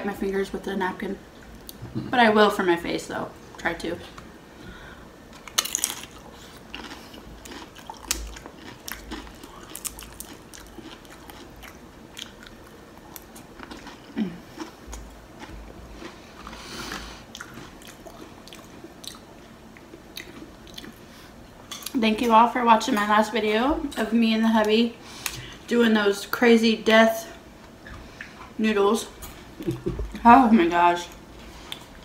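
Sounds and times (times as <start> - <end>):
tortilla chips crunching: 5.4 - 14.8.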